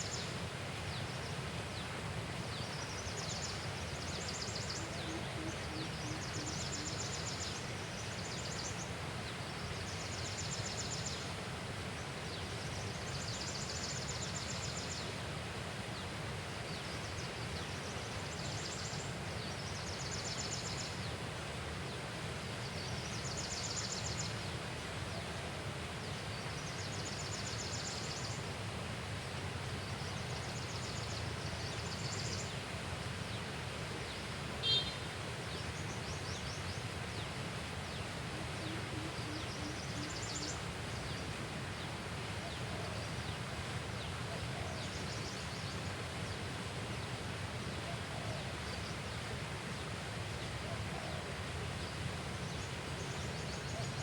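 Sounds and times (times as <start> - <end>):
outdoor noise: 0.0 - 11.4.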